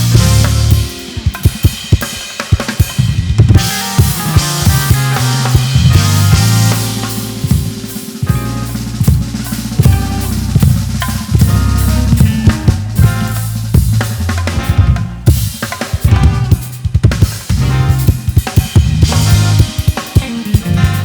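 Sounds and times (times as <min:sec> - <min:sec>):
held bass notes: 0:00.0 - 0:01.6, 0:03.0 - 0:21.0
keyboard chords: 0:00.0 - 0:02.2, 0:03.1 - 0:21.0
drum kit with rimshots: 0:00.0 - 0:21.0
live band playing: 0:00.0 - 0:21.0.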